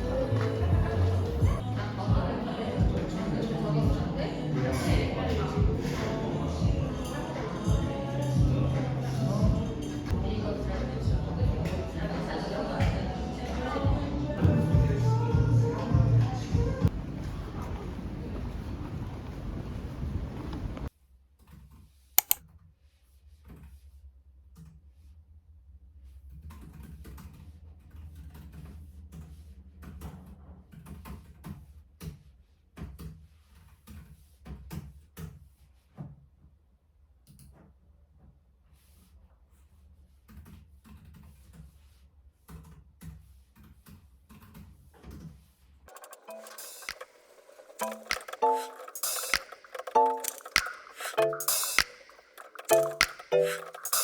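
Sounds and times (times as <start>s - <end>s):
sharp click: 22.2s - 22.4s, 47.8s - 54.0s
typing on keyboard: 22.2s - 22.4s, 47.8s - 54.0s.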